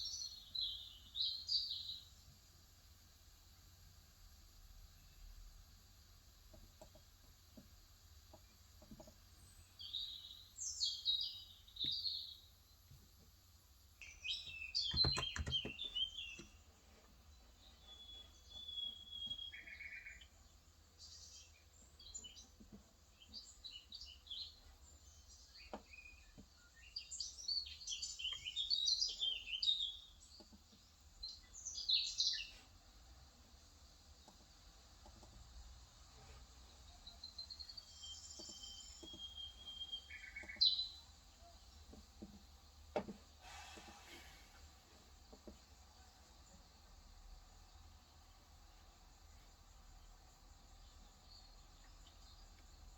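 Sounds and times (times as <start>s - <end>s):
small birds chirping: 0.0s - 52.9s
keyboard keystrokes: 14.9s - 15.8s
knocks: 14.9s - 16.5s.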